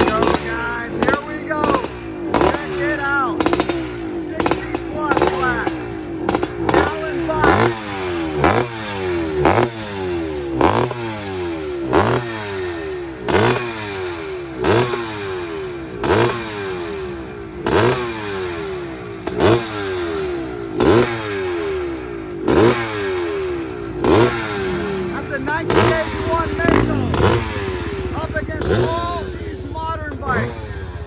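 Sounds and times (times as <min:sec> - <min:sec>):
dirt bikes revving engines: 0:00.0 - 0:31.0.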